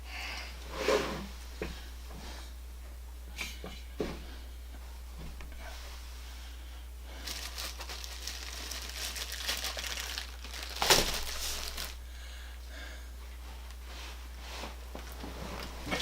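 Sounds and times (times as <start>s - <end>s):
plastic packaging crinkling: 7.2s - 12.0s.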